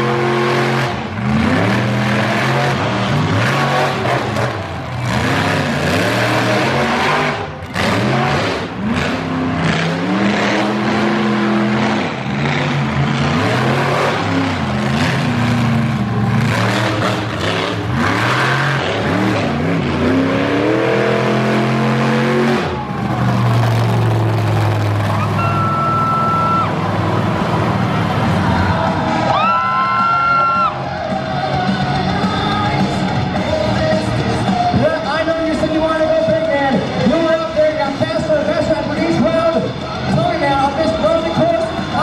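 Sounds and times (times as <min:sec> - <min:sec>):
monster truck engine revving: 0:00.0 - 0:42.0.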